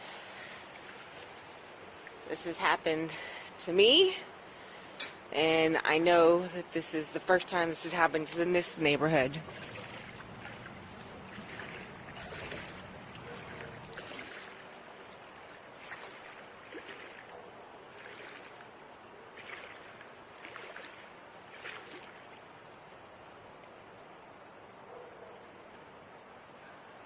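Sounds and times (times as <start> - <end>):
floodwater splashing and lapping: 0.0 - 5.3, 6.4 - 23.8.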